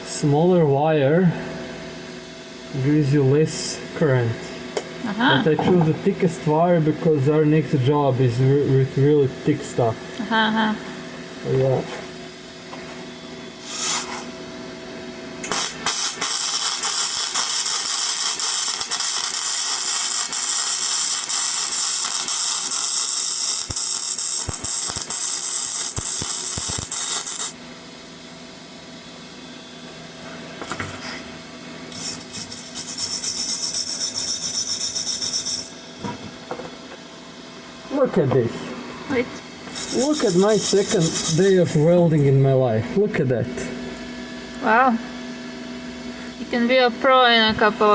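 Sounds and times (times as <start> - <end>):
welding arc crackling hiss: 15.4 - 27.6, 31.9 - 36.3, 39.7 - 42.4.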